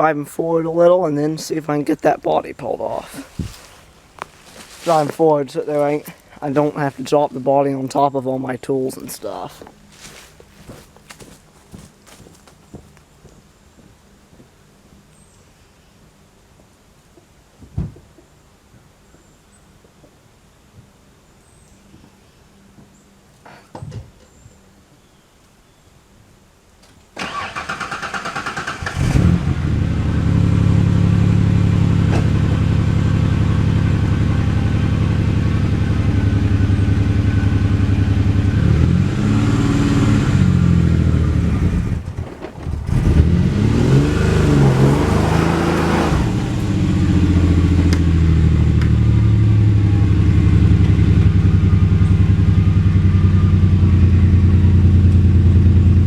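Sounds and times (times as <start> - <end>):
car engine cranking on starter: 27.2 - 30.4, 41.1 - 43.8
car engine revving and running: 28.1 - 56.0.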